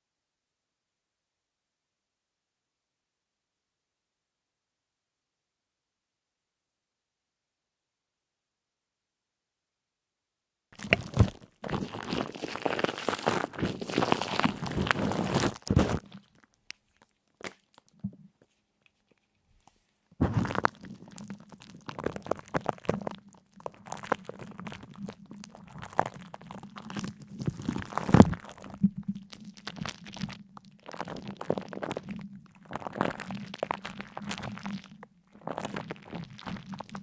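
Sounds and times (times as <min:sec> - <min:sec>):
crisp crunching and crackling: 0:10.8 - 0:18.0, 0:20.2 - 0:37.0.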